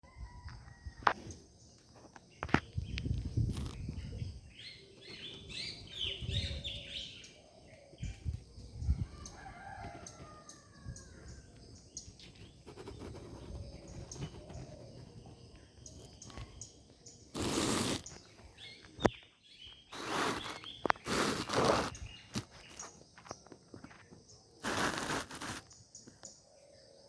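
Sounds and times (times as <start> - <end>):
birds chirping and singing: 1.1 - 24.4
rooster crowing: 8.9 - 11.4.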